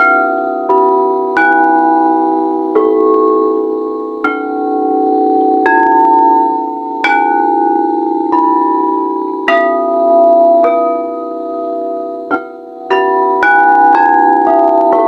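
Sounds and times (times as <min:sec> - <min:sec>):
singing bowls struck with mallet: 0:04.3 - 0:15.0.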